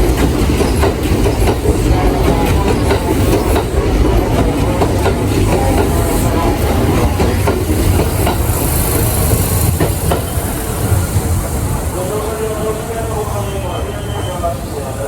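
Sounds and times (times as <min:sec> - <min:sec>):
wheels clicking over rail joints: 0:00.0 - 0:11.8
electric train rumbling: 0:00.0 - 0:15.0.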